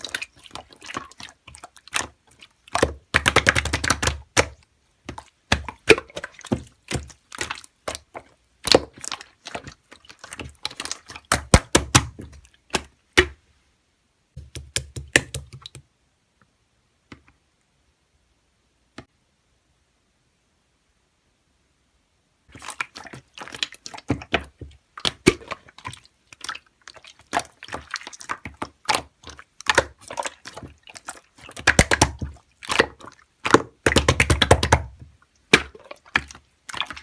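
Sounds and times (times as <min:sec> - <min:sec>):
slime squished by hand: 0:00.0 - 0:13.4, 0:22.5 - 0:37.0.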